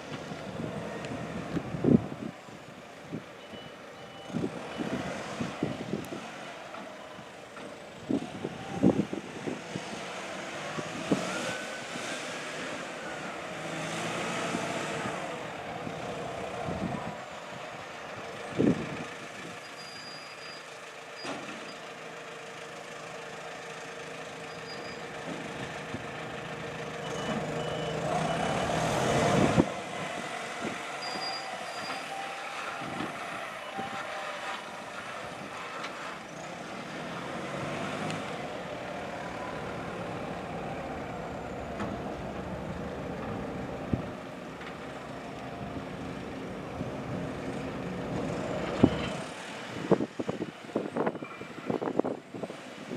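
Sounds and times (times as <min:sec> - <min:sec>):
ferry machinery hum: 0:21.9 - 0:52.6.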